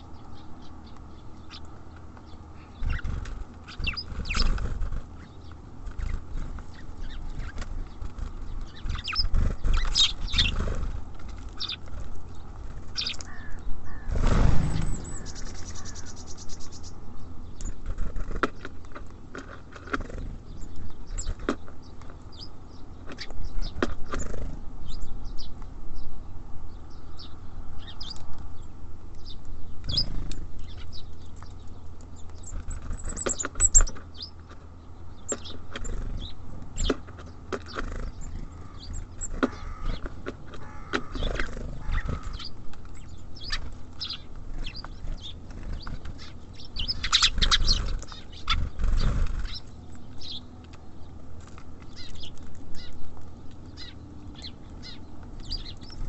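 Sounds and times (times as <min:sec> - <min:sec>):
wing flutters: 0:02.7 - 0:16.8, 0:32.4 - 0:34.0, 0:35.4 - 0:49.8
birds pecking taps: 0:23.0 - 0:24.2, 0:31.1 - 0:56.0.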